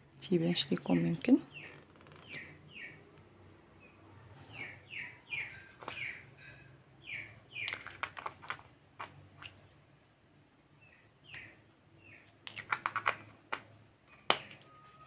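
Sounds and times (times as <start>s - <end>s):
small bird chirping: 0.9s - 3.2s, 3.8s - 8.3s, 10.8s - 13.2s
plastic jar and lid clicking: 7.6s - 9.6s, 12.4s - 14.6s.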